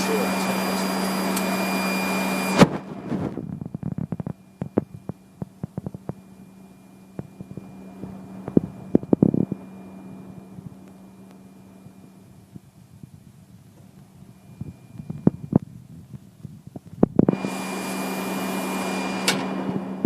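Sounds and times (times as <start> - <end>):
radio hiss: 0.0 - 6.4
low steady hum: 0.0 - 20.0.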